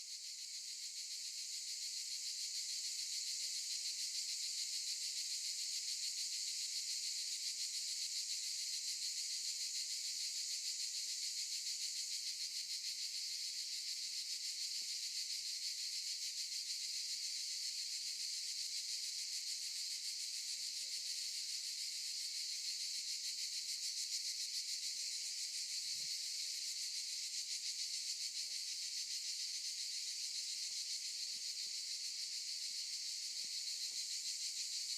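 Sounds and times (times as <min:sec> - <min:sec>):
cicadas buzzing: 0:21.4 - 0:34.9.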